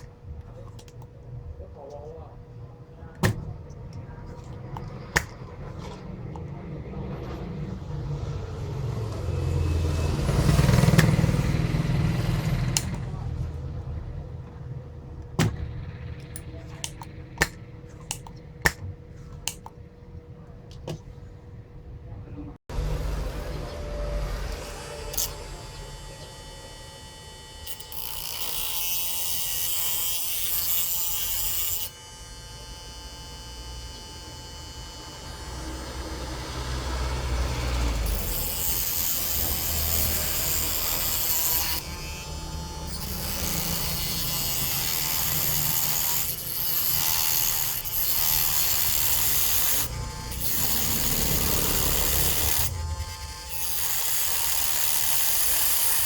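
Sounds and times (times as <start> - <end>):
handheld power tool running: 9.0 - 13.2, 22.7 - 56.0.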